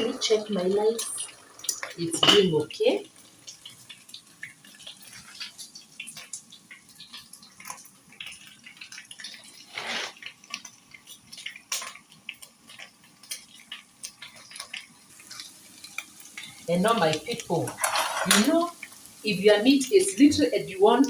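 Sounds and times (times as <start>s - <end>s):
meat frying in hot oil: 0.0s - 21.0s.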